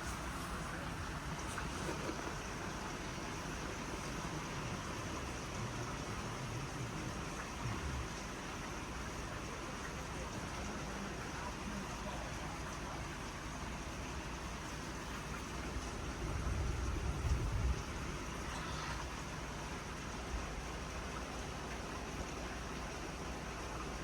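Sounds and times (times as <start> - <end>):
heavy rain hissing: 0.0 - 23.6.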